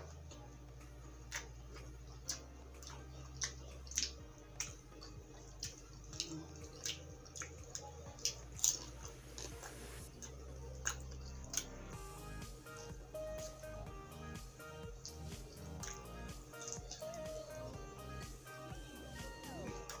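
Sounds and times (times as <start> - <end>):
wet chewing and mouth smacks: 1.2 - 11.9, 14.7 - 18.3.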